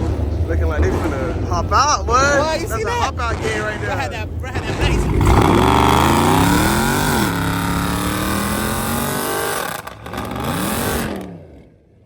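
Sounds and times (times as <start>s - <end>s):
car engine revving hard: 4.6s - 11.7s.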